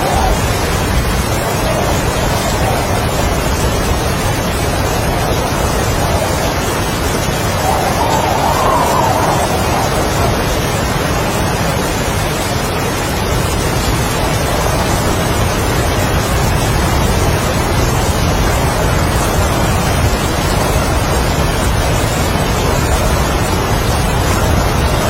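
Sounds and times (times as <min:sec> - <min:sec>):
low rumble: 0:00.0 - 0:12.6
heavy rain: 0:00.0 - 0:25.0
strong wind: 0:00.0 - 0:25.0.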